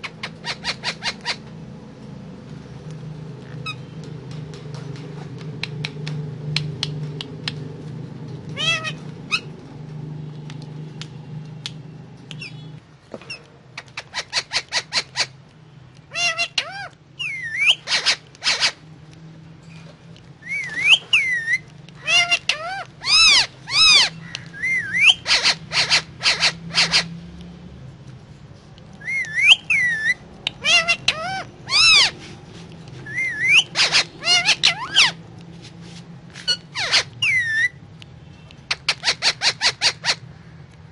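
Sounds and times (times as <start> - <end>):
parakeet squawks and whistles: 0.0 - 1.5, 8.5 - 9.6, 12.3 - 15.4, 16.1 - 18.8, 20.4 - 27.2, 29.0 - 32.2, 33.0 - 35.2, 36.4 - 40.3.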